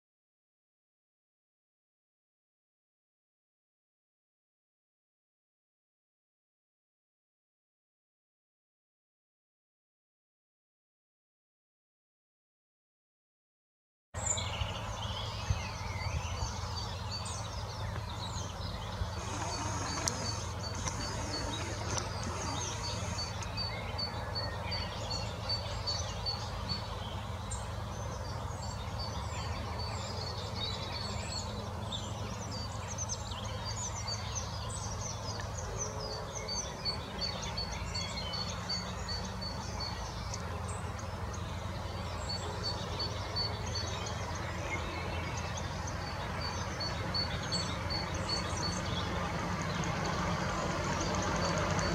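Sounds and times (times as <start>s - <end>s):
birds singing and calling: 14.2s - 51.9s.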